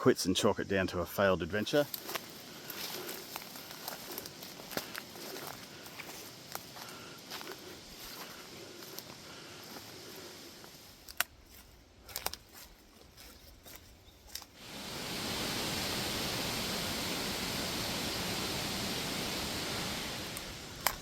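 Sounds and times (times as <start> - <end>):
twigs snapping underfoot: 10.9 - 14.6
wind rushing through bush: 14.5 - 21.0.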